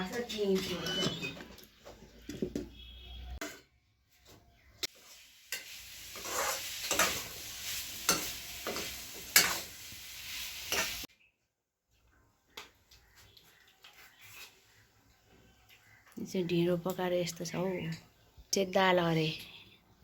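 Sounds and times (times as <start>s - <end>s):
food scraping and squelching on plate: 4.8s - 9.7s.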